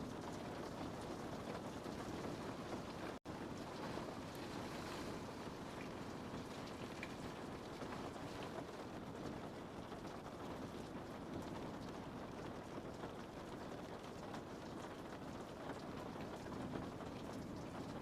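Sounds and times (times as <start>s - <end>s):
rain on a window: 0.0s - 18.0s.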